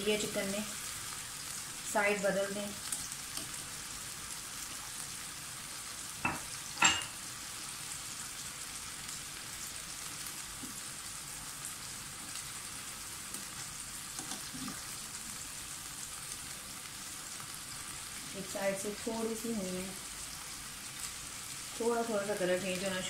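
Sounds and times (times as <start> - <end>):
chicken sizzling in oil: 0.0 - 23.0
metal skewers clicking on pan: 2.8 - 3.6.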